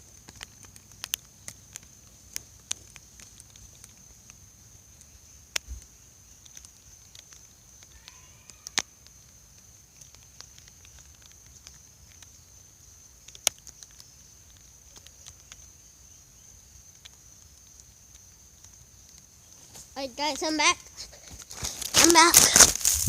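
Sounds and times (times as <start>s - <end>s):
sharp snaps: 0.0s - 12.4s, 13.2s - 15.7s, 20.4s - 23.0s
light ticks: 0.1s - 5.7s, 6.3s - 15.8s
high-pitched insect drone: 7.6s - 9.3s.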